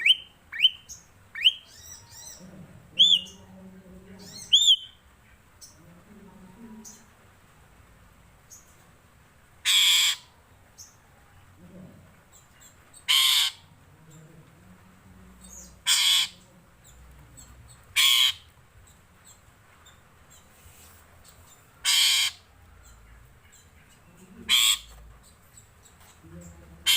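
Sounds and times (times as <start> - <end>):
starling harsh calls: 9.6 - 10.4, 13.0 - 13.8, 15.8 - 16.5, 17.9 - 18.6, 21.8 - 22.5, 24.4 - 25.0.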